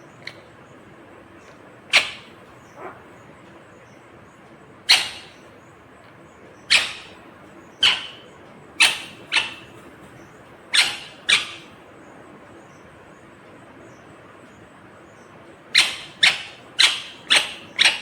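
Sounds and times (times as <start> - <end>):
parrot calling sharply: 1.9 - 3.1, 4.9 - 5.4, 6.7 - 7.2, 7.8 - 8.2, 10.7 - 11.7, 15.8 - 18.0.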